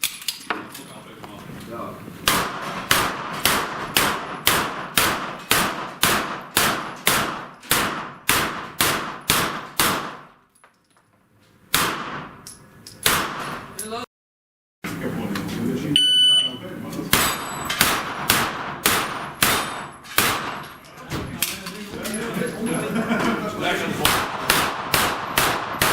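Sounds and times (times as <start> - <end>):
gunshots hitting steel targets: 2.2 - 10.4, 11.7 - 13.7, 17.1 - 20.8, 24.0 - 25.9.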